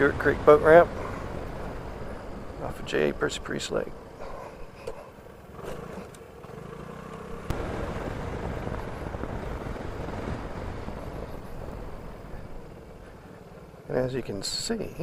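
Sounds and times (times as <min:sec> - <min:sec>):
scooter engine running: 0:04.0 - 0:14.8
wind noise: 0:07.5 - 0:13.2.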